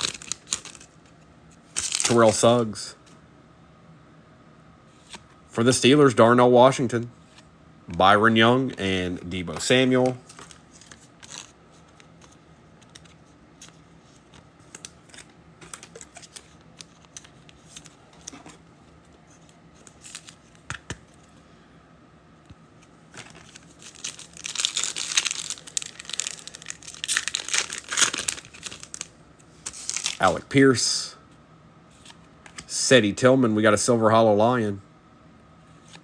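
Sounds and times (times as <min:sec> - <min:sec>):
foil wrapper tearing: 0:00.0 - 0:00.9, 0:01.8 - 0:02.3, 0:23.2 - 0:30.4.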